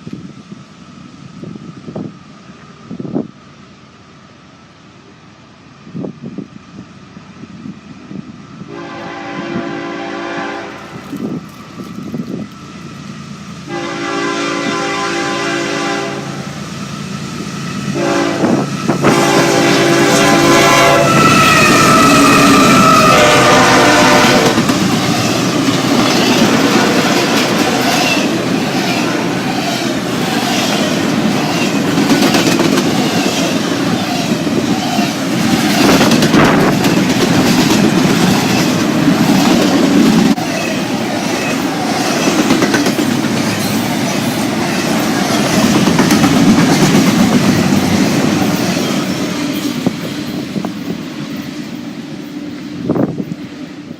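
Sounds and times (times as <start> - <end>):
train rumbling past: 0.0 - 53.9
diesel locomotive horn blasts: 8.7 - 11.1, 13.6 - 16.6, 17.9 - 25.5
wheels clacking over rail joints: 24.0 - 51.5.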